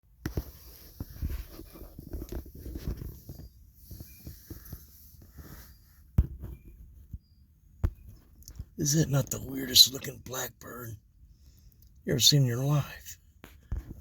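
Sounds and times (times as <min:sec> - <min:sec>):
rustling on microphone: 0:00.3 - 0:07.3.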